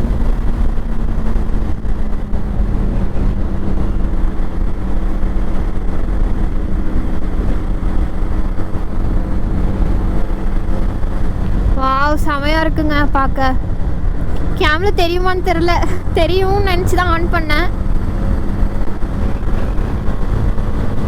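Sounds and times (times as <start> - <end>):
motorcycle engine running: 0.0 - 21.0
wind on microphone: 0.0 - 21.0.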